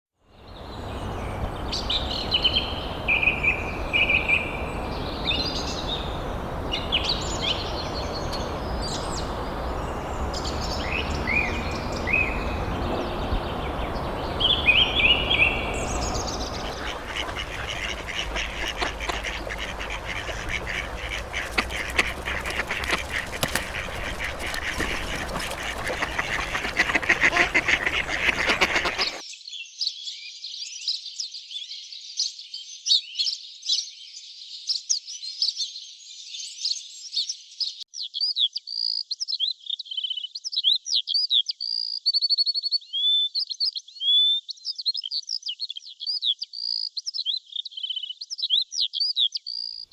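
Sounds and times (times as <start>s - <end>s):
birds calling: 0.5s - 29.2s.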